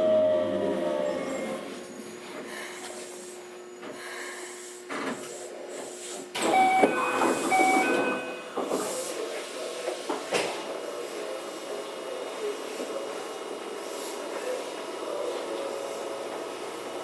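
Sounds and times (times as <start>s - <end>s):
train car hum and hiss: 0.0s - 17.0s
short electronic tone: 6.4s - 8.5s.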